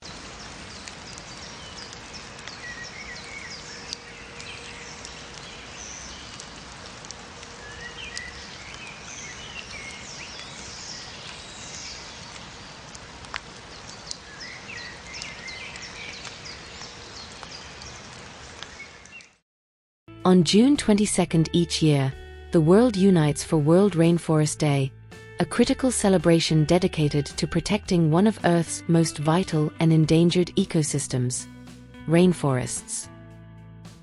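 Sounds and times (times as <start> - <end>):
birds chirping and whistling: 1.4 - 6.4, 7.6 - 12.4, 13.9 - 18.0.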